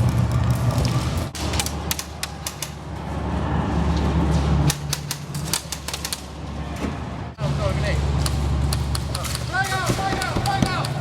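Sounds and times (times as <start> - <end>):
airsoft guns firing: 1.4 - 2.8, 8.9 - 11.0.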